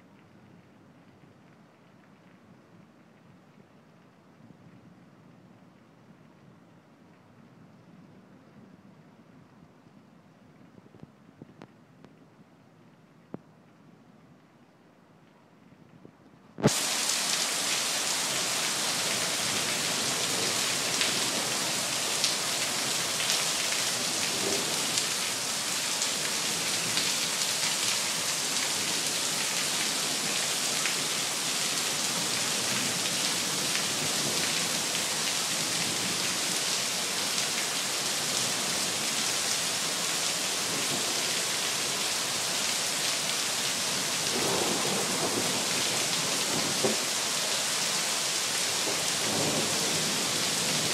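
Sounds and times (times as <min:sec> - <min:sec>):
heavy rain falling: 0:16.6 - 0:50.9.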